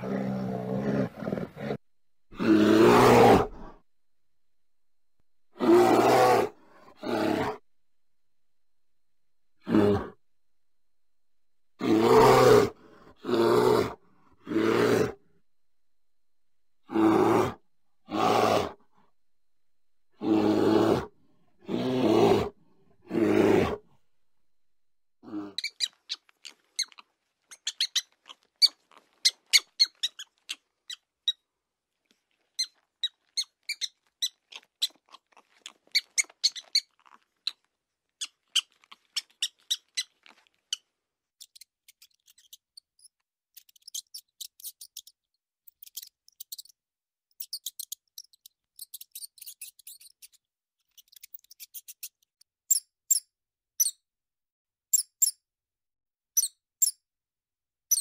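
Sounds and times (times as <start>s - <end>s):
mouse squeaking: 25.6s - 31.0s, 32.6s - 37.6s, 38.2s - 40.8s, 41.4s - 54.0s, 54.9s - 55.4s, 56.4s - 57.0s.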